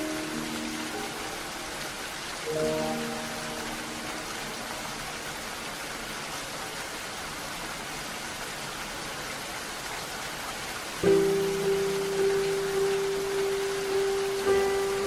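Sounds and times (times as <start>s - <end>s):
soft melody: 0.0s - 6.1s, 11.0s - 15.0s
steady rain hiss: 0.0s - 15.0s.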